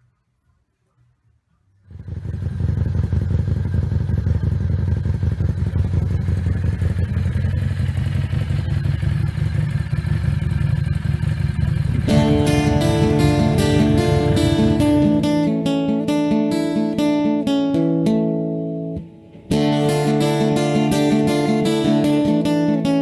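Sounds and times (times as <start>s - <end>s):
motorcycle engine running: 1.9s - 17.2s, 19.5s - 23.0s
acoustic guitar music: 12.0s - 23.0s.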